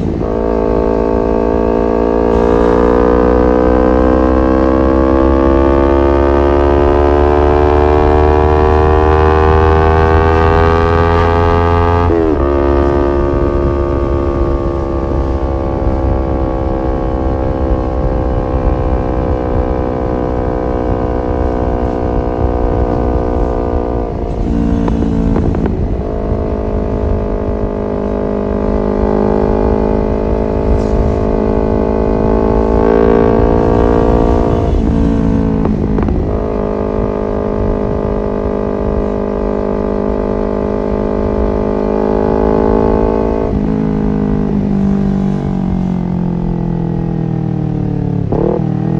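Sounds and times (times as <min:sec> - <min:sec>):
motorcycle engine running: 0:00.0 - 0:48.9
wind rushing: 0:11.9 - 0:39.4.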